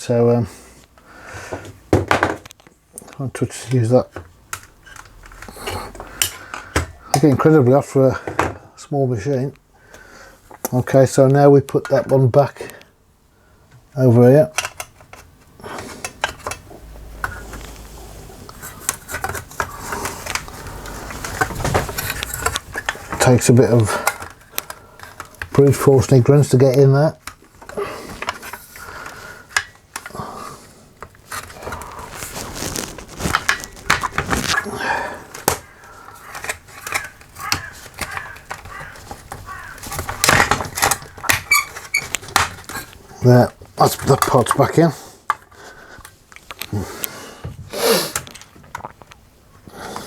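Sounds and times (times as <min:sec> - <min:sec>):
laminator parts clicking and knocking: 0:01.5 - 0:08.6, 0:13.7 - 0:17.8, 0:18.5 - 0:30.4, 0:32.6 - 0:49.2
plastic squeaking: 0:14.5 - 0:30.2, 0:31.0 - 0:44.9.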